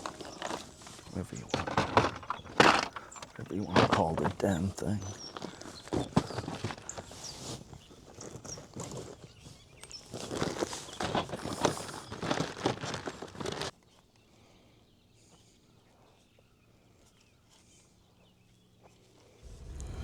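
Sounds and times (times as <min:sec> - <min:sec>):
knocks and clatter: 0:00.0 - 0:06.7.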